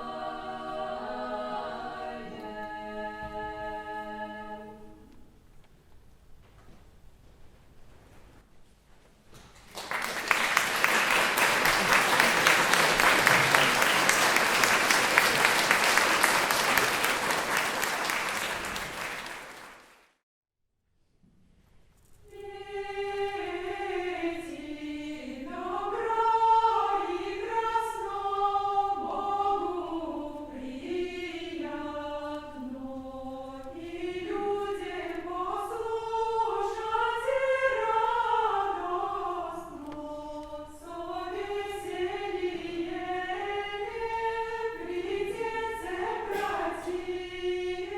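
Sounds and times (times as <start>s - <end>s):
a cappella voices singing: 0.0s - 5.2s, 22.3s - 47.9s
audience applause: 9.6s - 20.2s.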